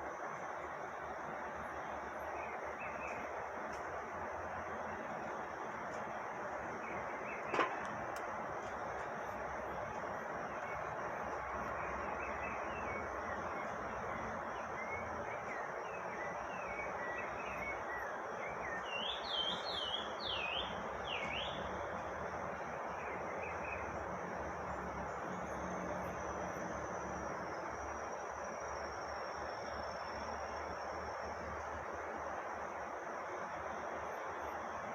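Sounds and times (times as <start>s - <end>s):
insect drone: 0.0s - 34.9s
outdoor hiss: 0.0s - 34.9s
birds chirping: 0.9s - 26.1s
sweeping bird call notes: 11.7s - 21.7s.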